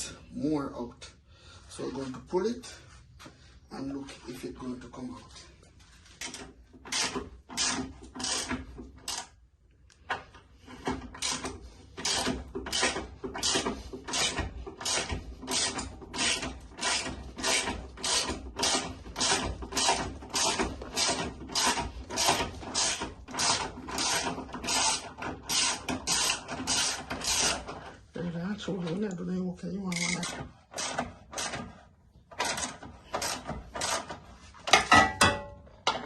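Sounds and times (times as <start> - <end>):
ratchet wrench clicking: 29.9 - 31.5.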